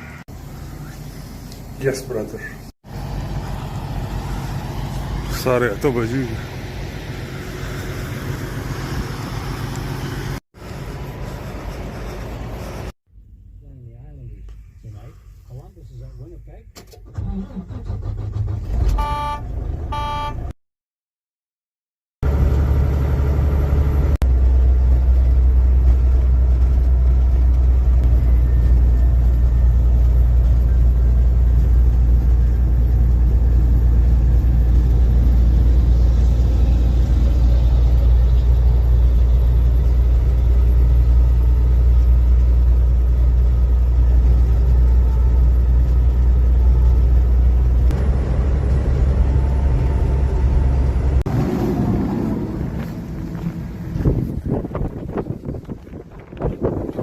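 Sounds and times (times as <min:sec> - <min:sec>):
diesel engine rumble: 0:00.0 - 0:20.5, 0:22.2 - 0:57.0
short electronic beeps: 0:19.0 - 0:20.4.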